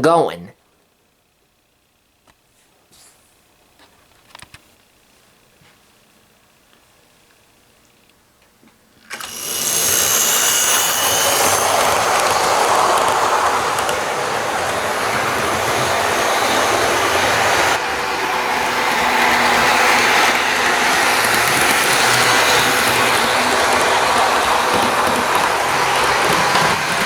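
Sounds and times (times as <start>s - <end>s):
model train motor whirring: 9.1s - 27.0s.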